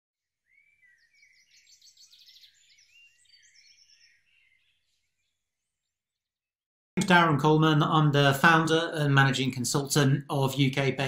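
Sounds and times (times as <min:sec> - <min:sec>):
faint birdsong: 0:00.2 - 0:06.6.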